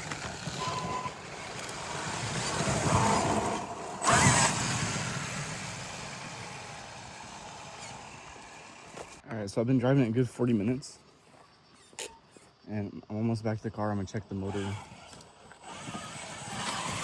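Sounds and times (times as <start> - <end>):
rc truck motor and tyres: 0.0 - 9.2, 14.1 - 17.0.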